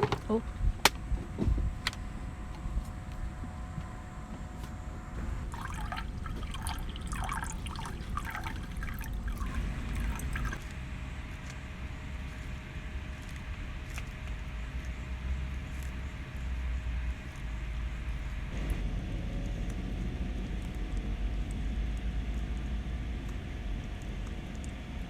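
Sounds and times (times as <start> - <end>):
low steady rumble: 0.0 - 25.0
liquid pouring and gurgling: 5.2 - 10.8.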